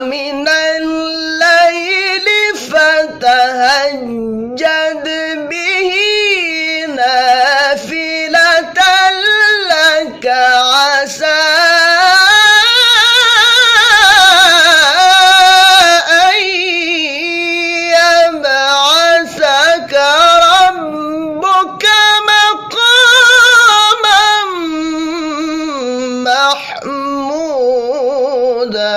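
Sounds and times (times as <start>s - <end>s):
man chanting recitation: 0.0s - 28.9s.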